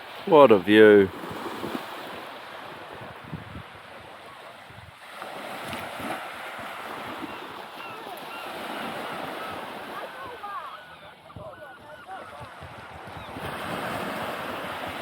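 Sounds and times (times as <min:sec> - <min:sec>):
sea waves washing onto beach: 0:00.0 - 0:15.0
wind on microphone: 0:02.9 - 0:05.0, 0:12.2 - 0:15.0.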